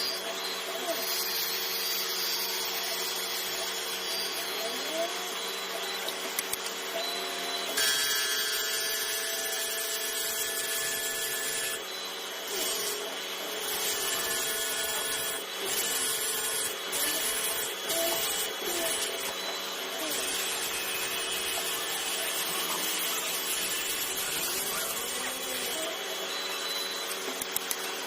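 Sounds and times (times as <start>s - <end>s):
cnc router whine: 0.0s - 28.0s
router cutting board: 6.9s - 28.0s.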